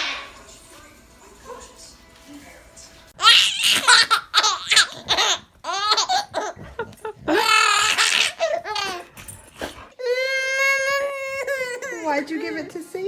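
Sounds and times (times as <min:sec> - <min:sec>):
baby laughing: 0:03.2 - 0:09.2, 0:10.0 - 0:12.3.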